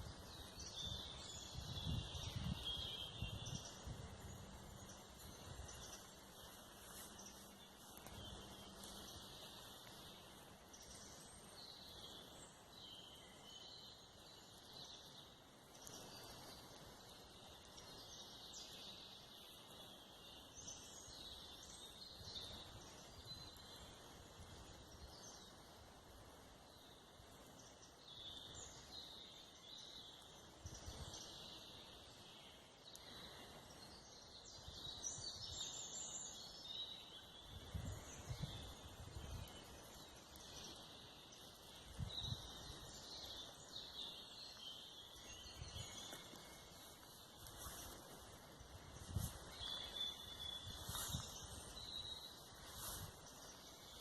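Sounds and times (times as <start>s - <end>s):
birds chirping and trilling: 30.7s - 54.0s.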